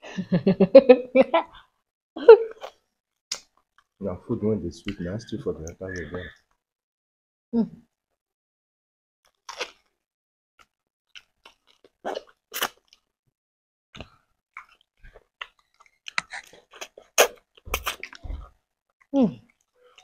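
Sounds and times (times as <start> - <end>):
people chewing and biting: 11.1 - 13.1, 14.0 - 18.6.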